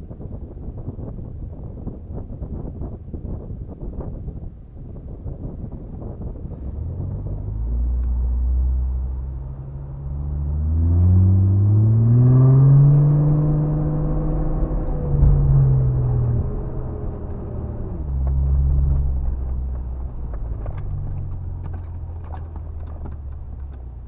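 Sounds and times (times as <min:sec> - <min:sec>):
off-road vehicle engine accelerating: 0:06.5 - 0:24.0.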